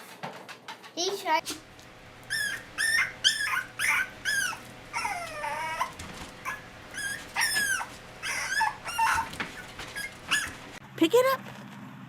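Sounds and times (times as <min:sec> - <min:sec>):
dog whining: 0:02.1 - 0:10.8.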